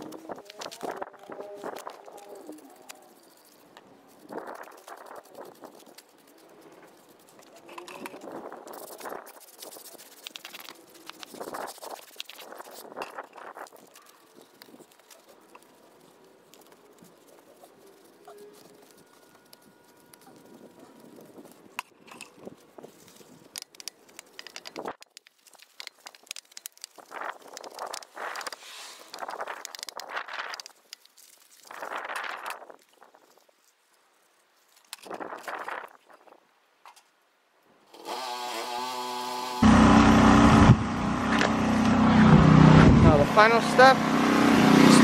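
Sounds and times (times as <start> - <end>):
brush scrubbing a car wheel: 0.0 - 21.7
pressure washer spraying drone: 38.0 - 45.0
pressure washer motor hum: 38.1 - 45.0.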